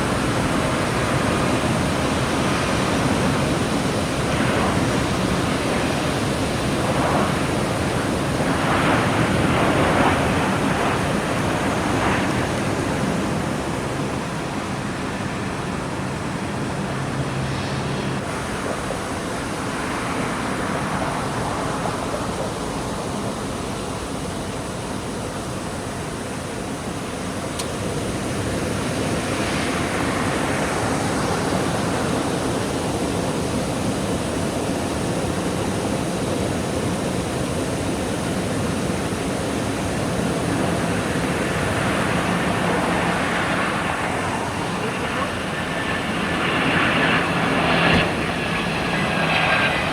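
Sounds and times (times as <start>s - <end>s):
jet engine roar: 0.0s - 49.9s.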